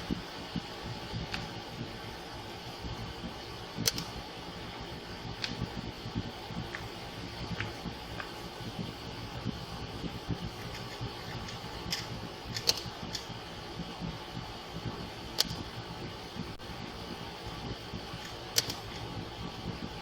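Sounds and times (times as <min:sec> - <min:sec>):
mechanical hum: 0:00.0 - 0:20.0
sharp clicks: 0:03.8 - 0:04.2, 0:11.5 - 0:13.3, 0:15.3 - 0:15.6, 0:18.2 - 0:19.0.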